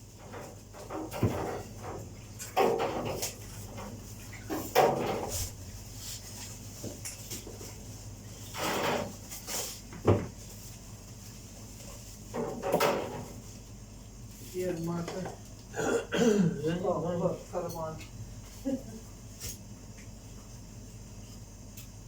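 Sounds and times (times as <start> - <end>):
kitchen knocks and rustles: 0.0 - 13.6
steady low hum: 0.0 - 22.0.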